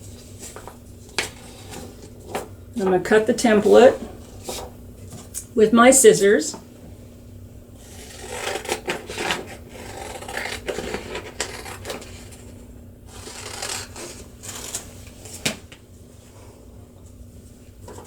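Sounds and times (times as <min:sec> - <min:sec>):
scissors snipping paper: 0:07.9 - 0:12.4, 0:13.1 - 0:14.9.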